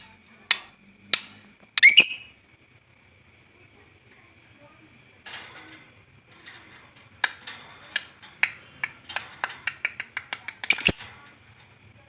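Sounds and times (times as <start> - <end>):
lovebird clicking chirps: 1.8 - 2.3, 9.8 - 11.2.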